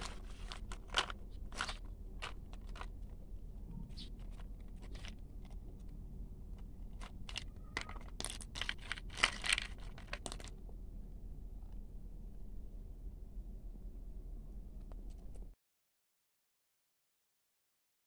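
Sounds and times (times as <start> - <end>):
toy pieces and gravel scraping: 0.0 - 3.2, 3.9 - 5.8, 6.5 - 10.6.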